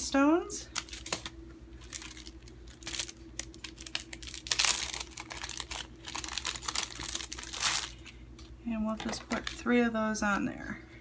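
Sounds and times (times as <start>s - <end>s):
crinkling rustles: 0.7s - 9.7s.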